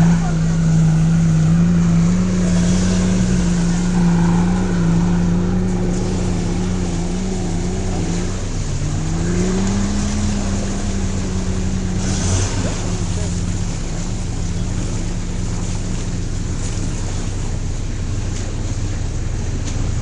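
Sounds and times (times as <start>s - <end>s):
off-road vehicle engine running: 0.0s - 20.0s.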